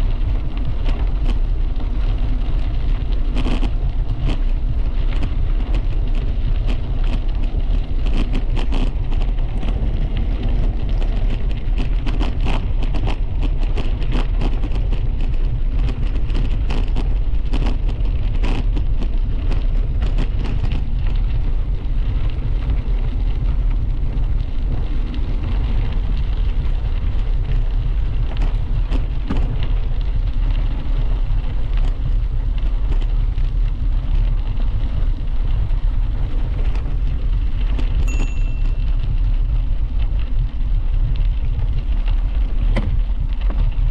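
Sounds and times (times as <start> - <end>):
small crackles and clicks: 0.0 - 43.9
wind rumble on microphone: 0.0 - 43.9.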